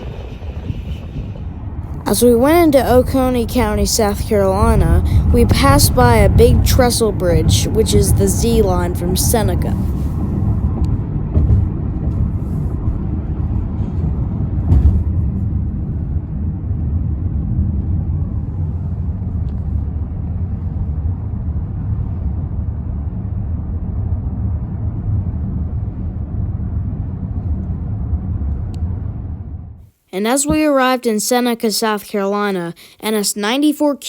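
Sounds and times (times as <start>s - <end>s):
car road and engine rumble: 0.0s - 29.8s
brief thump: 11.3s - 12.6s, 14.7s - 15.2s.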